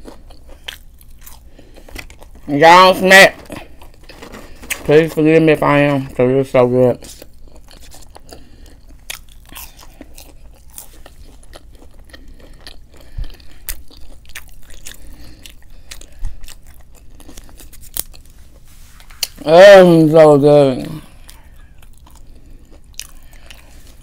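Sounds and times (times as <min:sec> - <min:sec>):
chewing crunchy food: 0:00.0 - 0:19.4, 0:20.9 - 0:24.0.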